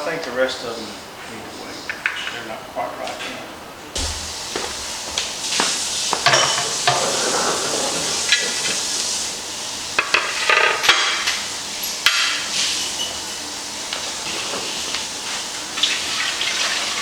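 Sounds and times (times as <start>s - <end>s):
utensils and pots clattering: 4.0s - 8.8s
steady hiss: 4.0s - 10.1s.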